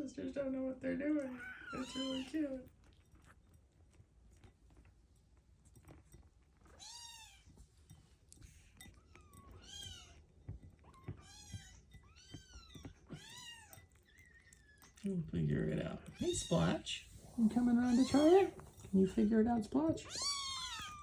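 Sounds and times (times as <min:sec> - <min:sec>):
kittens mewing: 0:01.2 - 0:02.6, 0:20.0 - 0:21.0.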